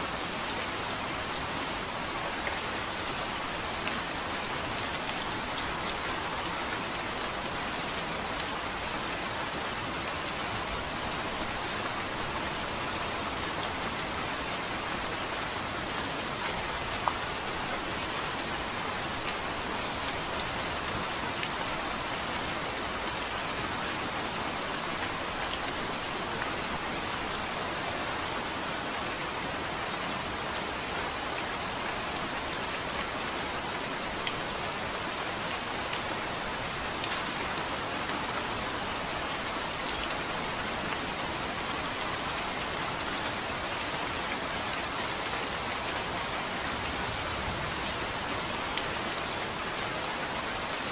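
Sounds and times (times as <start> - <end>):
steady rain hiss: 0.0 - 50.9.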